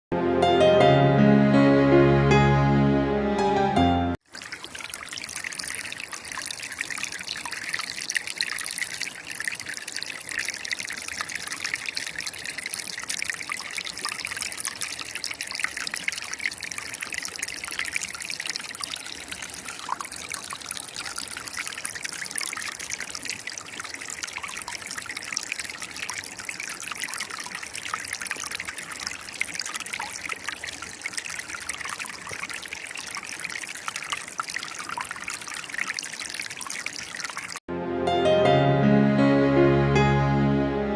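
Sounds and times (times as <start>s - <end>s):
river water trickling and splashing: 4.2s - 37.7s.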